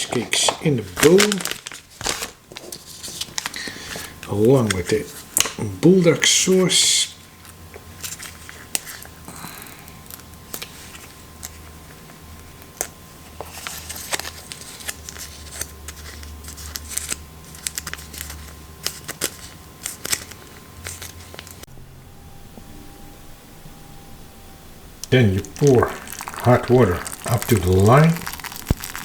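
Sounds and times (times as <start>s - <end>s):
plastic sachet crinkling: 0.2s - 5.1s, 25.4s - 29.0s.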